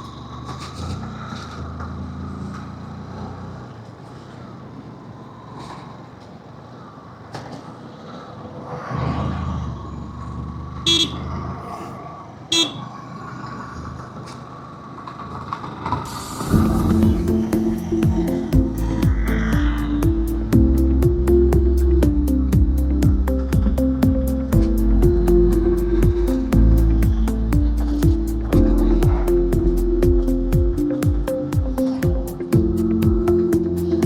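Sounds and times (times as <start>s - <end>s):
vehicle engines and road noise: 0.0s - 34.0s
short horn toots: 10.9s - 11.3s, 12.5s - 12.9s.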